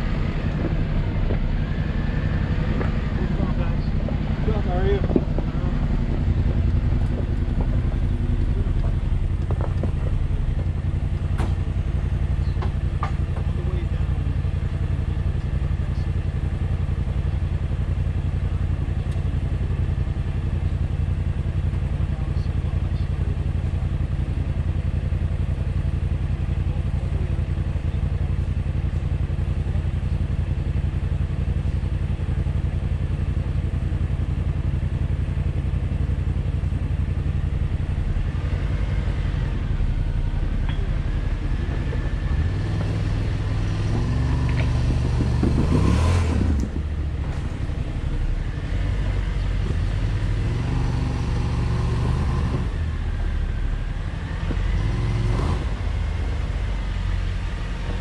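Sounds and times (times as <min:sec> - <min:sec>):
vehicle crawling over rocks: 0:00.0 - 0:11.6
engine revving: 0:00.0 - 0:17.1, 0:37.3 - 0:58.0
car engine idling: 0:00.0 - 0:58.0.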